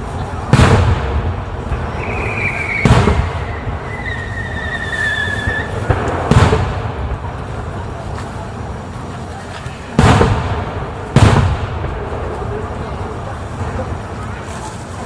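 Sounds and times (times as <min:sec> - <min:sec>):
firework booms: 0:00.0 - 0:15.0
high whistling tones: 0:01.6 - 0:05.9.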